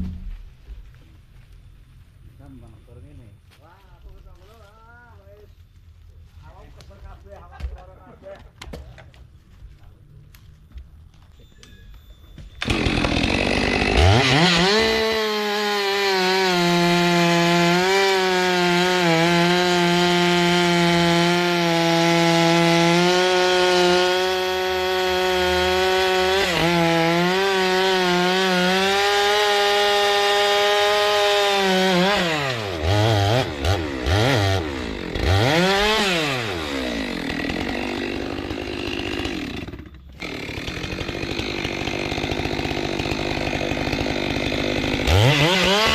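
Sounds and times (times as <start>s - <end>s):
chainsaw cutting wood: 12.4s - 45.9s.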